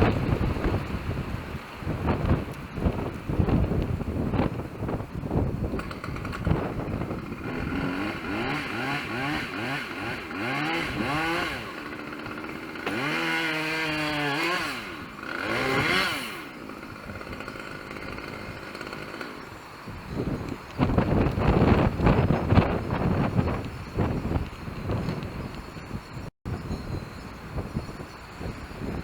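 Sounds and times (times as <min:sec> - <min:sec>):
chainsaw revving: 0:05.6 - 0:19.7.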